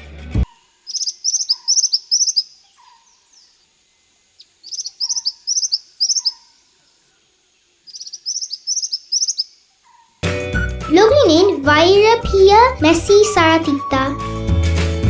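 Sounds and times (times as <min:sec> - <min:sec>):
bird calling high-pitched notes: 0:00.8 - 0:03.4, 0:04.4 - 0:06.5, 0:07.9 - 0:10.0.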